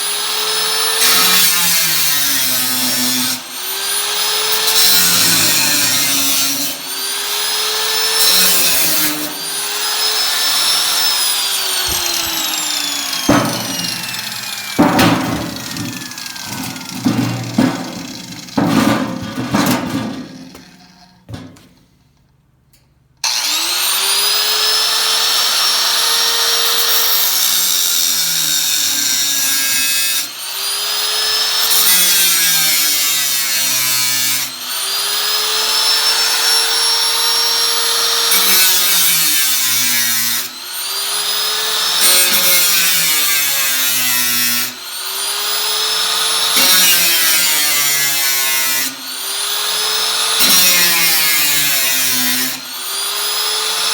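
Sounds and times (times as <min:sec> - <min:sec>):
power tool cutting sheet metal: 0:00.0 - 0:21.3, 0:23.2 - 0:53.9.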